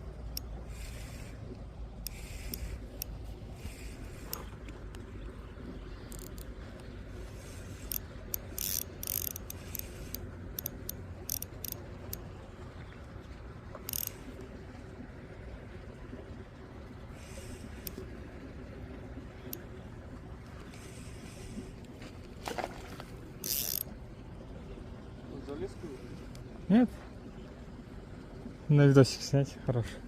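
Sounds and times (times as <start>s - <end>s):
fishing reel clicking: 0.3s - 1.4s, 2.0s - 4.5s, 6.1s - 6.5s, 7.4s - 12.2s, 13.8s - 14.2s, 17.7s - 18.0s, 23.4s - 23.9s.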